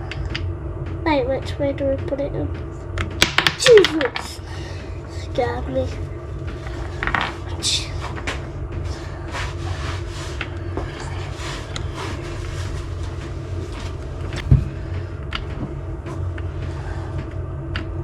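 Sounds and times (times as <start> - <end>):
steady low hum: 0.0 - 18.0
loud thump: 14.4 - 15.0.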